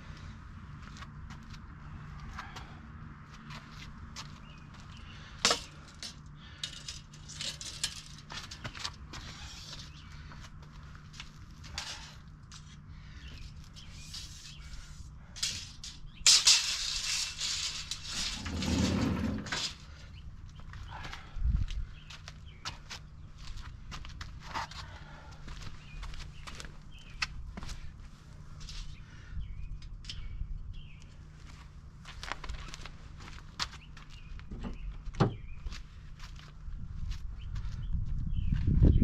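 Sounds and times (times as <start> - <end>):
rustling scrape: 13.8 - 20.0.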